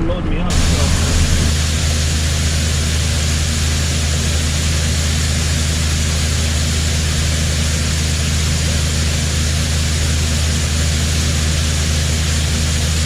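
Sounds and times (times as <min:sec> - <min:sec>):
farm machinery engine running: 0:00.0 - 0:13.0
broad even hiss: 0:00.5 - 0:09.2.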